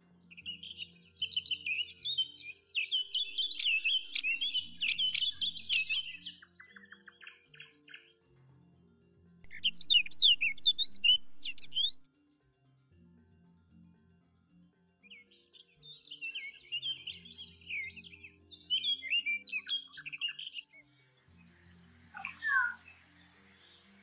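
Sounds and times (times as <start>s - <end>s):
soft background music: 0.0s - 24.0s
small birds chirping: 0.4s - 7.4s, 9.5s - 12.0s, 16.3s - 24.0s.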